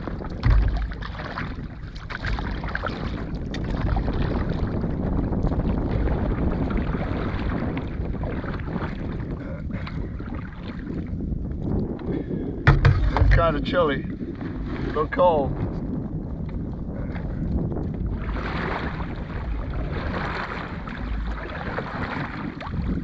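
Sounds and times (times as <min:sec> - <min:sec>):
water sounds from boat: 0:00.0 - 0:23.0
wind rumbling on microphone: 0:00.0 - 0:23.0
loud low thump: 0:00.4 - 0:01.1, 0:12.6 - 0:13.8.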